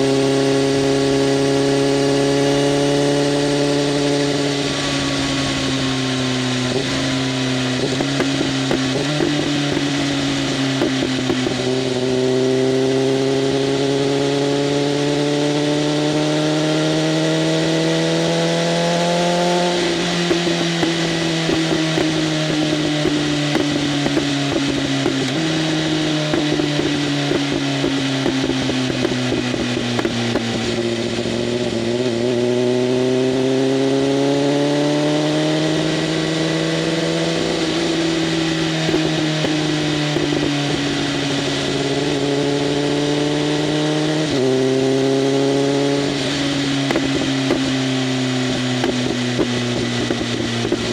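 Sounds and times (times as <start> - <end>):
motorcycle engine revving: 0.0 - 50.9
exhaust pops: 5.2 - 12.1, 18.3 - 32.2, 36.8 - 42.8, 46.0 - 50.9.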